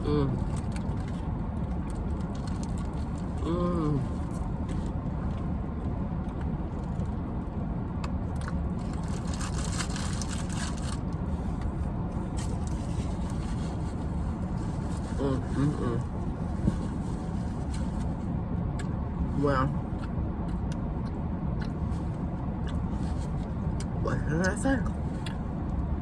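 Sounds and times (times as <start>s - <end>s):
short voice-like hum: 0.0s - 0.4s, 3.4s - 4.2s, 15.1s - 16.1s
car engine rumble: 0.0s - 26.0s.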